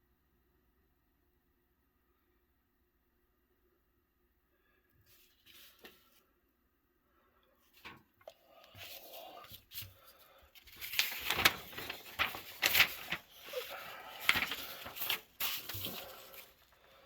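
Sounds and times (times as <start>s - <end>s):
paper rustling and crinkling: 5.1s - 6.2s, 8.7s - 17.0s.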